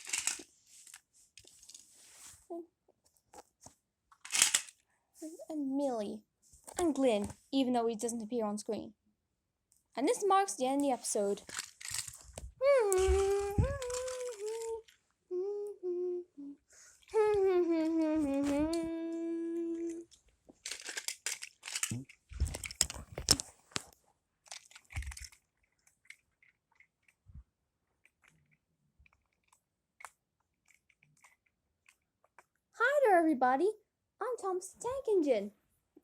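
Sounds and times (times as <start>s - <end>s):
crinkling handling noise: 0.0s - 4.8s, 10.8s - 15.1s, 19.6s - 27.4s
person humming a tune: 12.6s - 20.1s.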